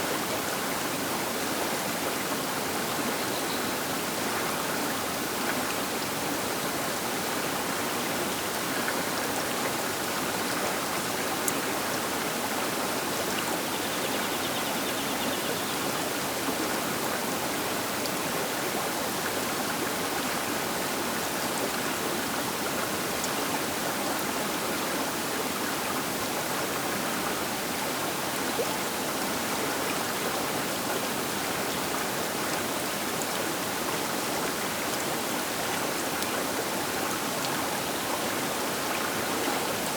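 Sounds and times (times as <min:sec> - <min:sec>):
river water rushing: 0:15.3 - 0:39.9.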